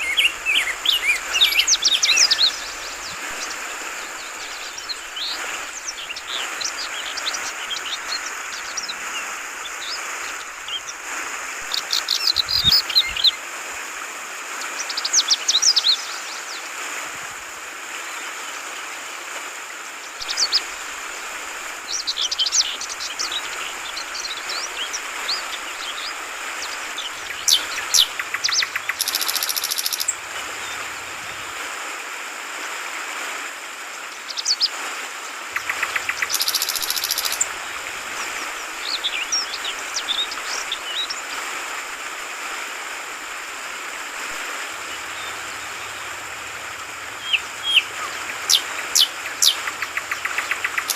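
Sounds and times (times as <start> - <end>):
flowing water gurgling: 0.0 - 50.9
bird chirping: 27.0 - 30.8, 35.6 - 37.5, 47.2 - 50.9.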